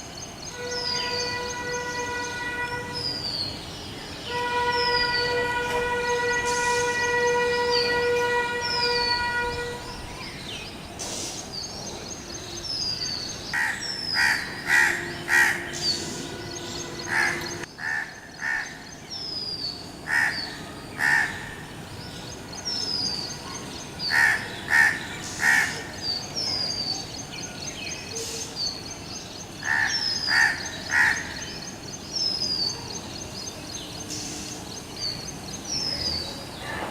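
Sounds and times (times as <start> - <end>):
steady horn-like tone: 4.3 - 10.2, 14.6 - 17.7
crows cawing: 13.6 - 15.8, 17.1 - 18.8, 20.1 - 21.6, 24.1 - 25.9, 29.6 - 31.4.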